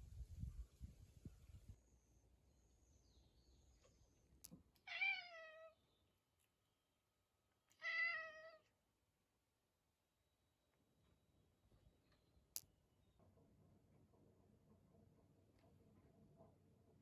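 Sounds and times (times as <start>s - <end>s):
cat meowing: 4.8s - 5.8s, 7.7s - 8.7s.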